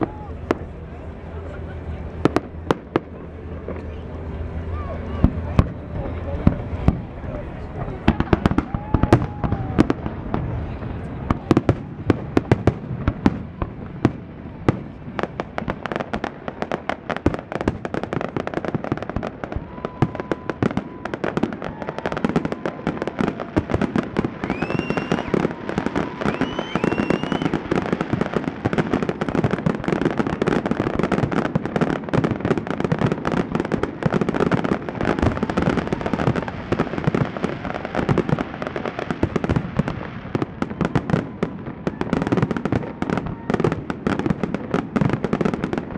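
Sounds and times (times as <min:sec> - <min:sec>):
fireworks bangs and crackling: 0:00.0 - 0:45.9
rising firework whistles: 0:19.5 - 0:28.8.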